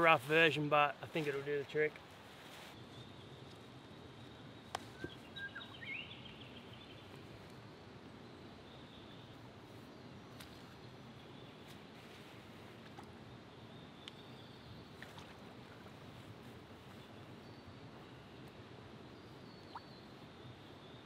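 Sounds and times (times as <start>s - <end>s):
steady low hiss: 0.0s - 21.0s
bird chirps: 4.6s - 7.0s.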